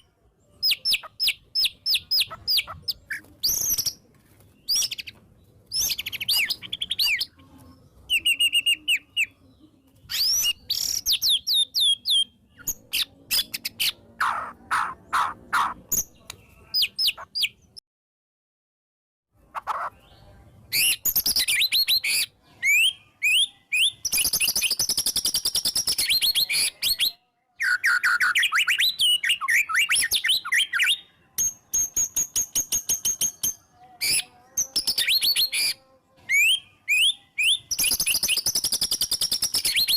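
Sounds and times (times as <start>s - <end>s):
songbird singing varied song: 0.0s - 17.8s, 19.6s - 39.9s.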